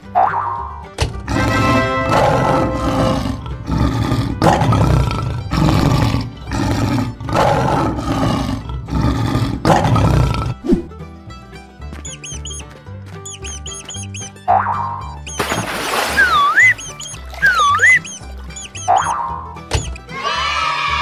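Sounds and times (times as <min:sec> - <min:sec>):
children's background music: 0:00.0 - 0:21.0
lion roaring: 0:01.2 - 0:10.6.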